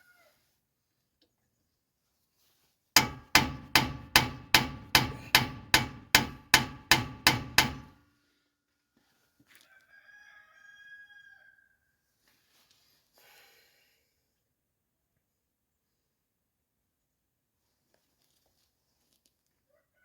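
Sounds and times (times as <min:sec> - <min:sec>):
hammer blows on metal: 0:03.0 - 0:08.0.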